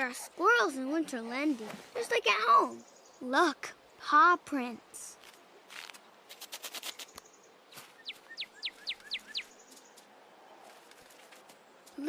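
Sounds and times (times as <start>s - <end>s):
small bird whistled notes: 8.0s - 9.6s.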